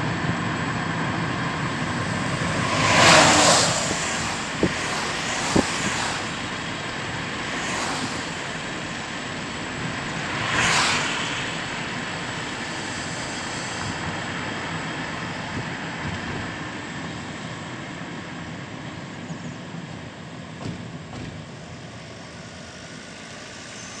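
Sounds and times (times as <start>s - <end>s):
loud rush of noise: 0.0s - 16.1s
train wheels on rails: 0.0s - 24.0s.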